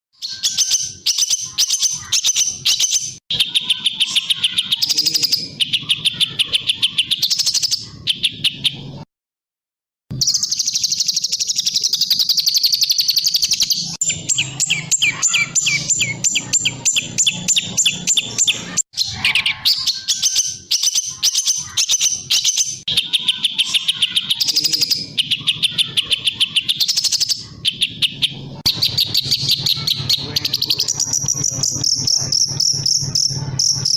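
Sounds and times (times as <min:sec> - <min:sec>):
songbird rapid chattering song: 0:00.2 - 0:09.0, 0:10.2 - 0:33.9.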